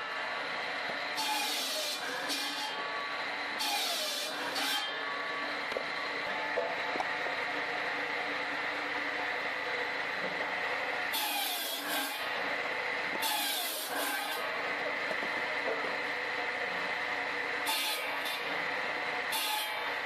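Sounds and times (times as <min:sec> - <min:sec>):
saw blade cutting log: 0:00.9 - 0:05.3, 0:11.0 - 0:16.1, 0:17.5 - 0:20.0.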